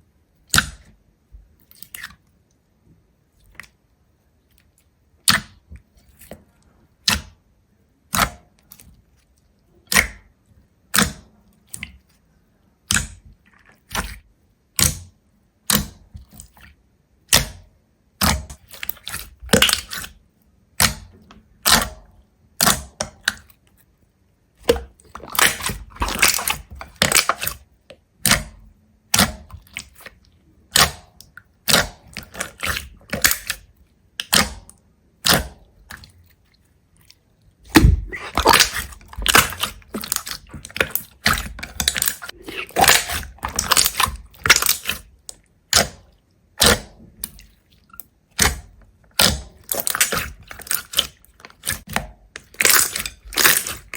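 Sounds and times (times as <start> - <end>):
sharp cracks or crunches: 37.7 - 45.1, 49.2 - 53.9.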